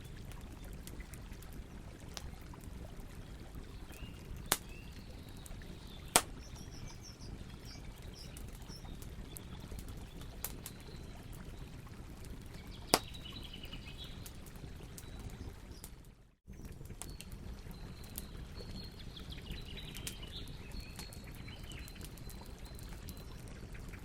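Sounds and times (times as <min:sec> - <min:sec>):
low rumble of flames: 0:00.0 - 0:24.0
wood crackling in campfire: 0:00.0 - 0:24.0
sharp fire pops: 0:04.5 - 0:04.8, 0:06.1 - 0:06.7, 0:12.9 - 0:13.3.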